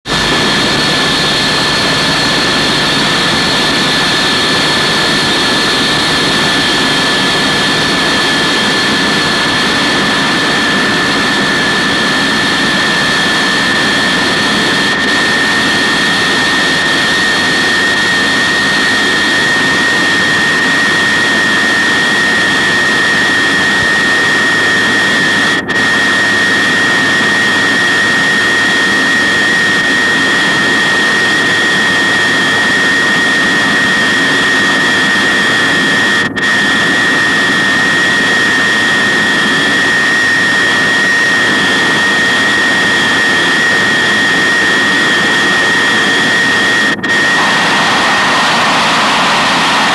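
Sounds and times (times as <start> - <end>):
jet engine roaring: 0.0 - 49.9.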